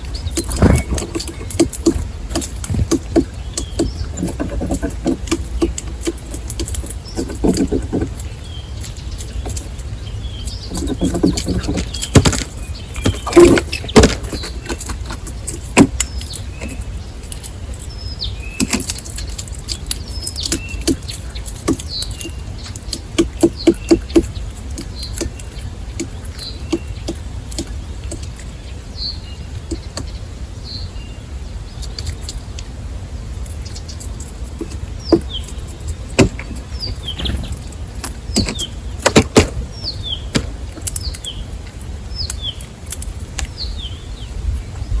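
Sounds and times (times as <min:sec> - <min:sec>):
wing flutters: 0:00.0 - 0:09.8
small birds chirping: 0:00.0 - 0:45.0.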